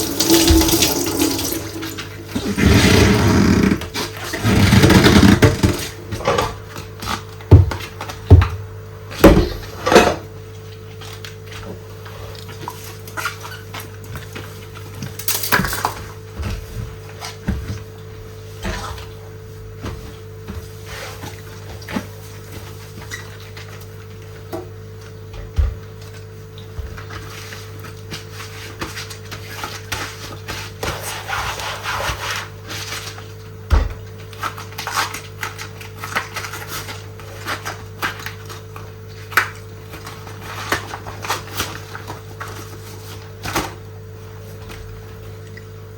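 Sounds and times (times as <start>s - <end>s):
running tap water: 0.0s - 3.9s.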